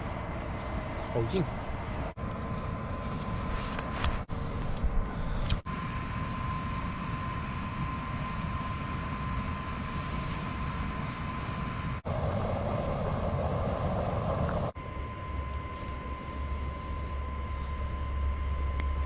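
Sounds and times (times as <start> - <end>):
blower fan with high whine: 0.0 - 19.0
loud hissing rush: 12.0 - 14.8.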